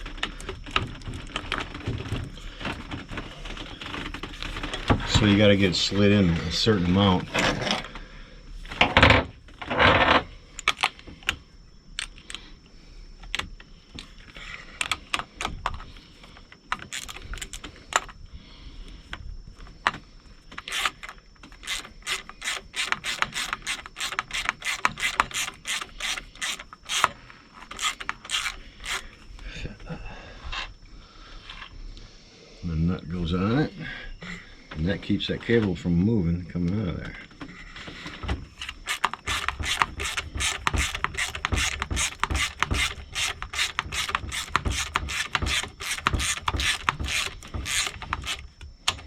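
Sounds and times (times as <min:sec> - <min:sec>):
ratchet clicking: 0:20.6 - 0:29.1, 0:38.6 - 0:49.0
rattling knocks: 0:37.4 - 0:49.0.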